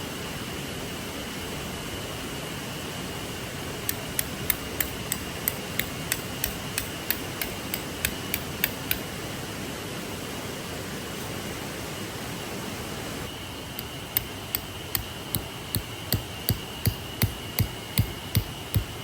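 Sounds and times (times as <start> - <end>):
sharp taps: 3.9 - 9.0, 13.8 - 19.0.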